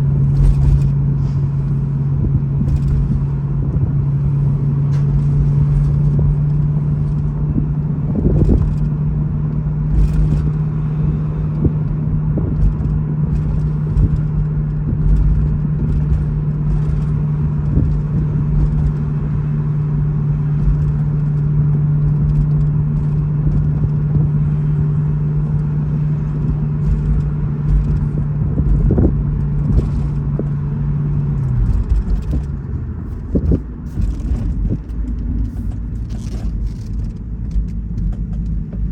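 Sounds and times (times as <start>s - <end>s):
car engine droning: 0.0s - 38.9s
metallic rattles under car: 0.0s - 38.9s
road rumble: 0.0s - 38.9s.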